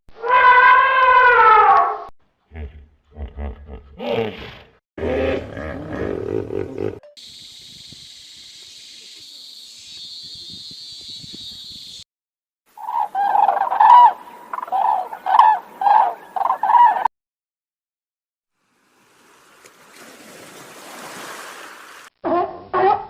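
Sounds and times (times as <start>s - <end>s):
chicken calling: 12.8s - 17.1s.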